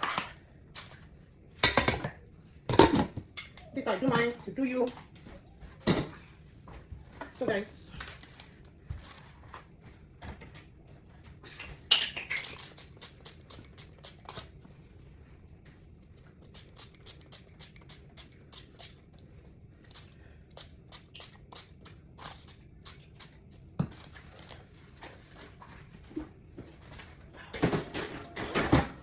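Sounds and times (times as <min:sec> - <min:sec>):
kitchenware clattering: 0:01.6 - 0:04.6.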